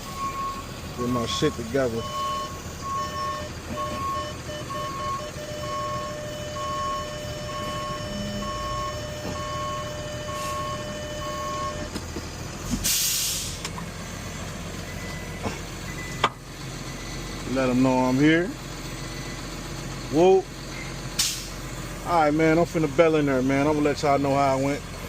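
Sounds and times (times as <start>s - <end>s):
truck backup alarm beeping: 0.0s - 12.1s, 12.8s - 25.0s
truck engine running: 0.0s - 25.0s
air brake hiss: 12.7s - 13.7s, 20.8s - 21.6s.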